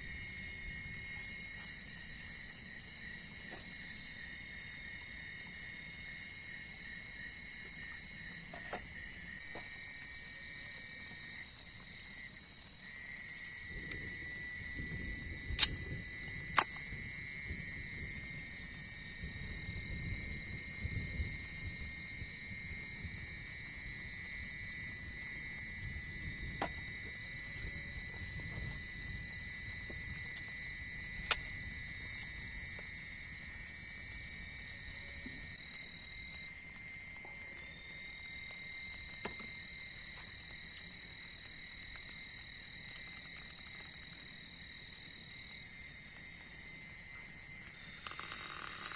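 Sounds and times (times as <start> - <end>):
shrill insect chorus: 0.0 - 48.9
sharp clicks: 15.6 - 15.8, 16.6 - 16.8.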